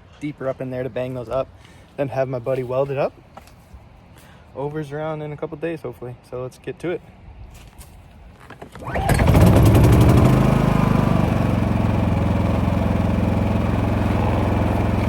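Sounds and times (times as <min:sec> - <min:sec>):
engine starting and idling: 0:08.6 - 0:15.0.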